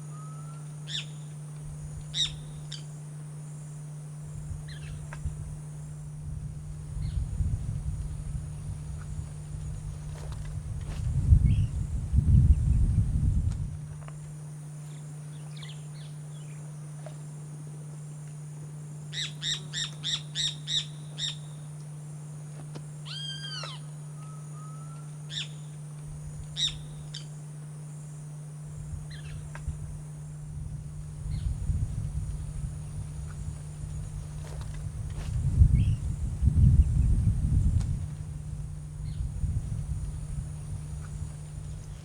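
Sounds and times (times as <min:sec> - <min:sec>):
steady low hum: 0:00.0 - 0:42.0
birds calling: 0:02.1 - 0:02.8, 0:23.1 - 0:25.7, 0:26.6 - 0:27.3.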